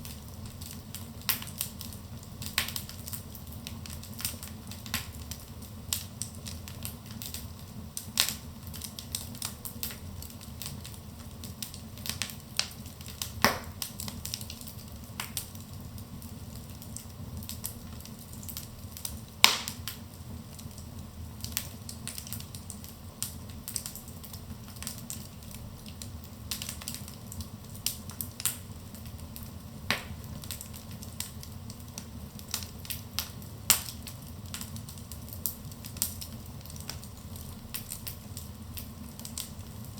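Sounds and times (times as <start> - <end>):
fire popping: 0.0 - 39.9
low rumble of flames: 0.0 - 39.9
wood fire crackling: 0.0 - 39.9.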